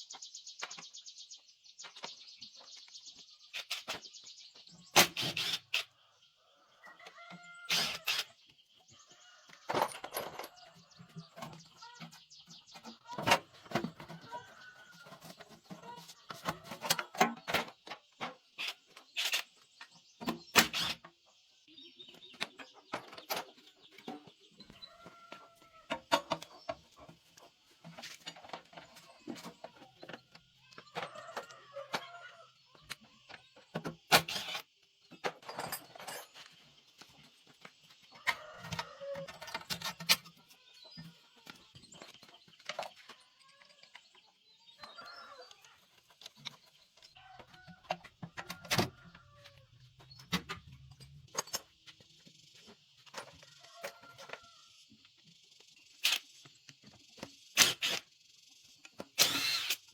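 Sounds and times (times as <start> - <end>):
chickens clucking: 9.0 - 18.6, 21.2 - 34.1, 37.8 - 50.2.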